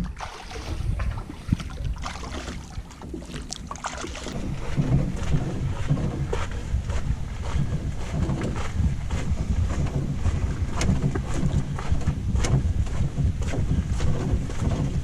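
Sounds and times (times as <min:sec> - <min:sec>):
paddle strokes in water: 0:00.0 - 0:15.0
wind buffeting microphone: 0:00.0 - 0:15.0.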